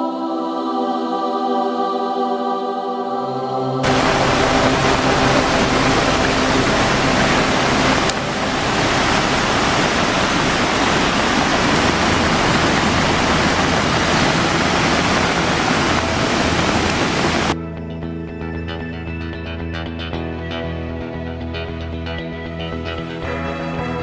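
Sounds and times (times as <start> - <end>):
floodwater rushing: 3.8 - 17.6.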